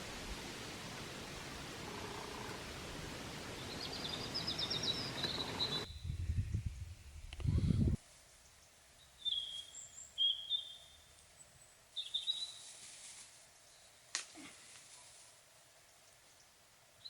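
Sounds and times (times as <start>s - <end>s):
small bird chirping: 3.6s - 6.9s, 8.3s - 12.7s.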